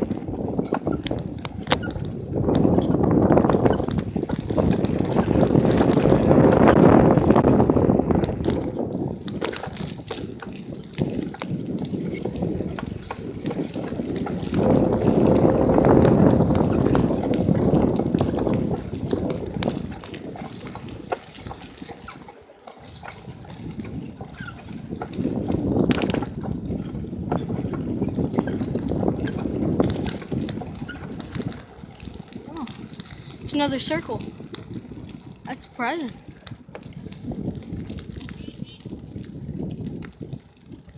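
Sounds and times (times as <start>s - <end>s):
bicycle clicks and rattles: 0.0s - 40.9s
wind buffeting microphone: 0.0s - 40.9s.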